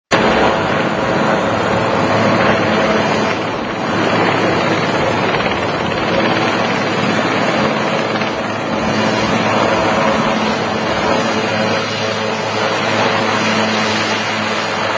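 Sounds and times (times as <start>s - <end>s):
helicopter rotor noise: 0.1s - 14.9s.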